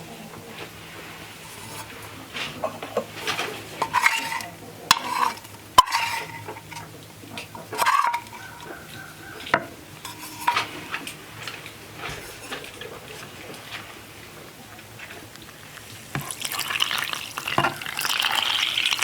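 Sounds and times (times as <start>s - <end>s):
stirring and scraping in pot: 1.0s - 6.9s, 7.5s - 8.8s, 10.0s - 13.8s, 14.9s - 19.0s
utensil clinking against pot: 15.2s - 19.0s.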